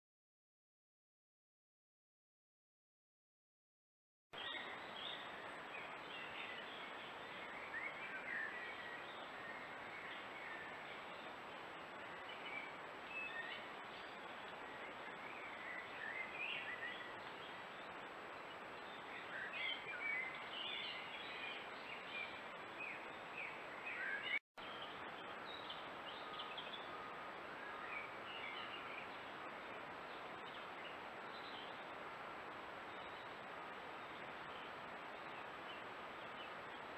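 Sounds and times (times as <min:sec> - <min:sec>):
small birds chirping and twittering: 0:04.4 - 0:36.9
steady background hiss: 0:04.4 - 0:36.9.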